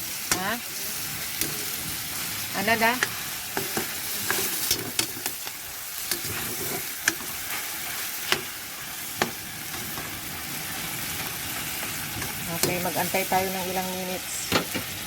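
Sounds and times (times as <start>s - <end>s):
chicken sizzling in a pan: 0.0s - 15.0s.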